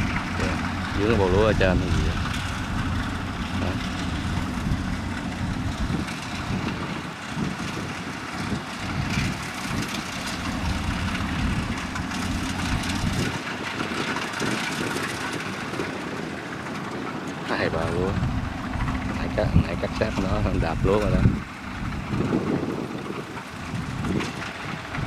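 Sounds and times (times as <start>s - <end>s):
combine harvester engine rumbling: 0.0s - 25.0s.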